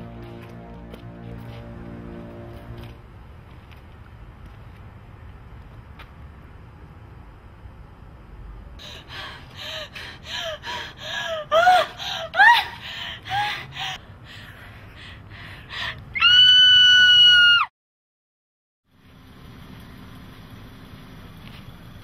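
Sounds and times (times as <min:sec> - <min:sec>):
woman gasping: 0:08.8 - 0:16.0
woman screaming: 0:11.4 - 0:12.9, 0:16.2 - 0:17.7.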